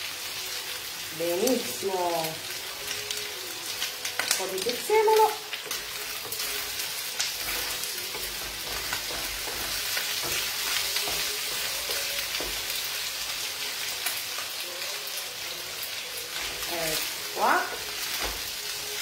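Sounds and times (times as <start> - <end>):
food sizzling in a wok: 0.0 - 19.0
wooden spoon scraping a pan: 4.5 - 13.1.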